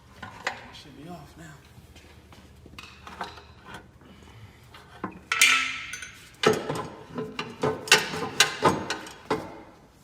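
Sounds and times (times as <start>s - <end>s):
metal knocks and clanks: 5.1s - 9.7s.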